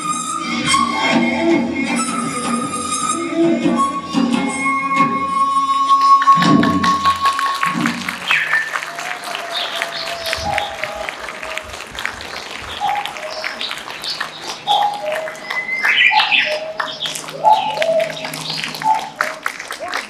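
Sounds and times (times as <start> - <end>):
audience applauding: 6.0 - 20.0
crowd cheers and calls: 6.0 - 20.0.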